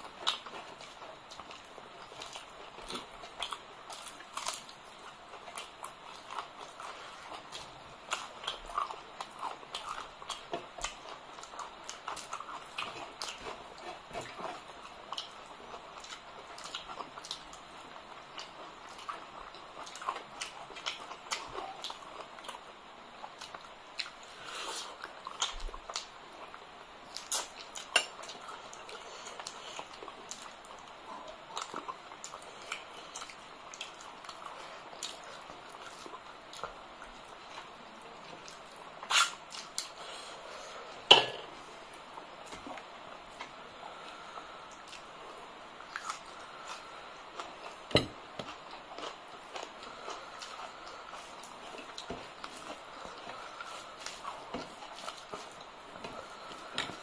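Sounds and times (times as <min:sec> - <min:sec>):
chewing and lip-smacking: 0:00.0 - 0:40.0.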